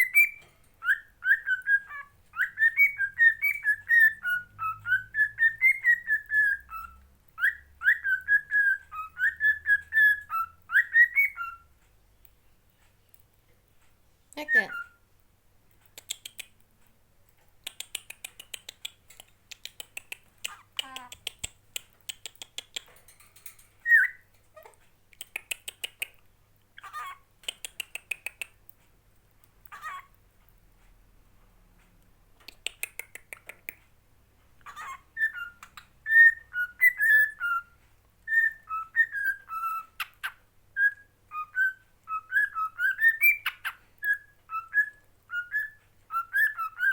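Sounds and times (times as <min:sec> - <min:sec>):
parrot whistling a tune: 0:00.0 - 0:11.7, 0:23.8 - 0:24.2, 0:34.6 - 0:46.9
parrot squawking: 0:20.4 - 0:21.3, 0:26.8 - 0:27.3, 0:29.6 - 0:30.2, 0:34.6 - 0:37.6.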